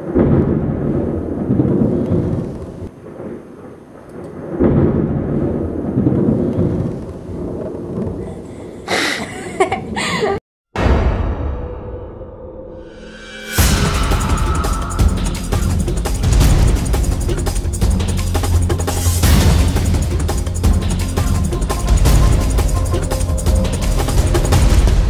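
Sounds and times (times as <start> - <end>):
thunder rolling: 0.0 - 8.9, 10.8 - 25.0
high wavering noise: 11.9 - 19.2.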